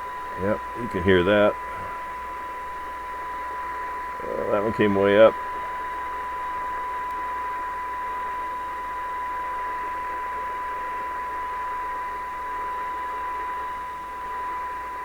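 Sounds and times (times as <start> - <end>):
steady test tone: 0.1 - 2.2, 3.6 - 5.6
radio speaker hiss: 0.4 - 2.1, 4.2 - 5.4.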